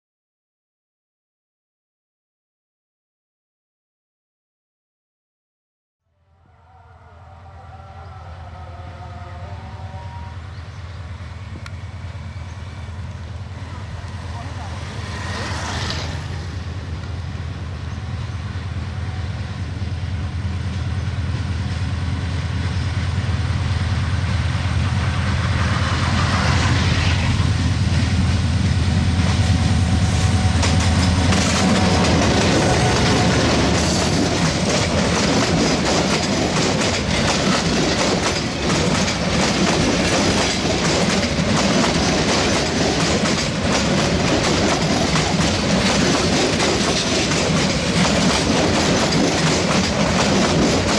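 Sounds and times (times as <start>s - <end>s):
diesel locomotive engine drone: 6.1s - 50.9s
wheels clacking over rail joints: 30.2s - 50.9s.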